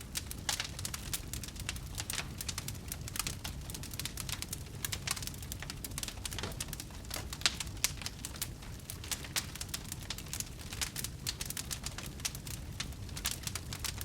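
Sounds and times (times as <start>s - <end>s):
low rumble of flames: 0.0s - 14.0s
wood fire crackling and popping: 0.0s - 14.0s.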